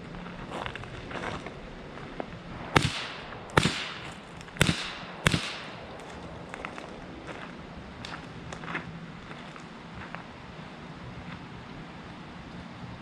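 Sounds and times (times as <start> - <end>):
rifle shots with ringing tail: 2.6 - 6.6.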